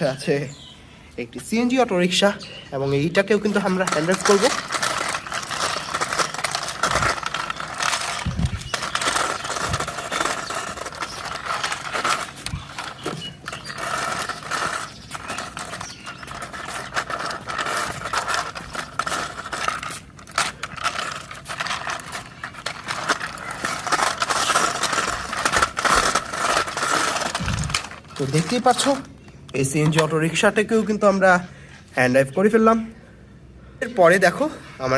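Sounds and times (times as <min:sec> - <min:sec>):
toy wheels rolling and scraping: 0:01.8 - 0:30.5
plastic clicks and rattles: 0:03.4 - 0:30.1.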